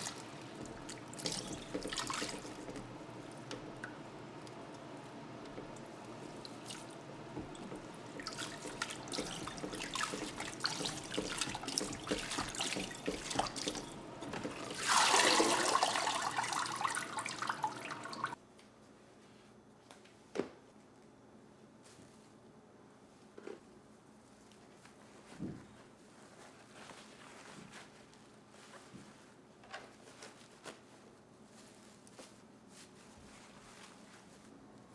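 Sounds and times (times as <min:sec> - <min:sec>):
tap water splashing into sink: 0:00.0 - 0:04.1, 0:05.4 - 0:18.4.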